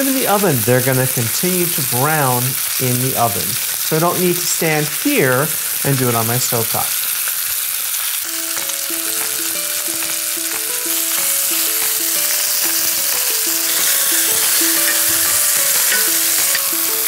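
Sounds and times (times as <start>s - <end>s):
chicken sizzling in oil: 0.0s - 17.0s
light background music: 8.2s - 17.0s.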